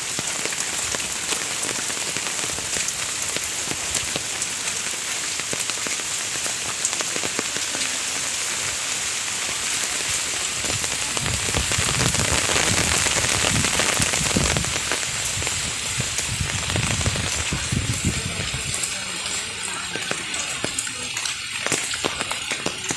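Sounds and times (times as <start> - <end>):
steady rain falling: 0.0 - 22.9.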